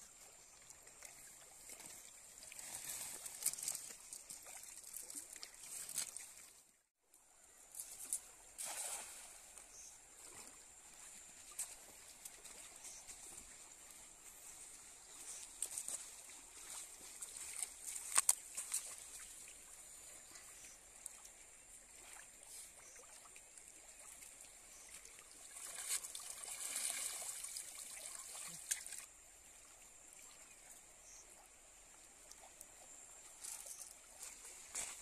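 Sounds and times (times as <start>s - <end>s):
river water splashing and trickling: 0.0s - 35.0s
water streaming off net: 8.6s - 9.4s, 25.4s - 29.0s.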